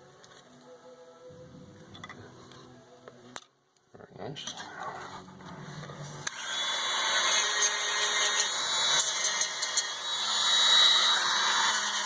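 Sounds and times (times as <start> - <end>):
small power tool whirring: 6.2 - 12.0.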